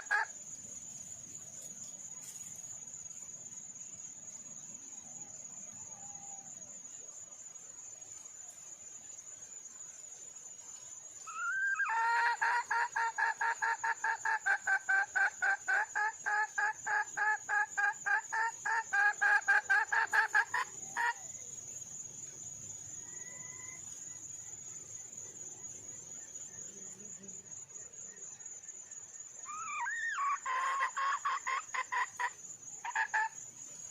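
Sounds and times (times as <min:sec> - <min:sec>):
high insect trill: 0:00.0 - 0:33.9
hen clucking rapidly: 0:11.9 - 0:21.2, 0:29.8 - 0:33.4.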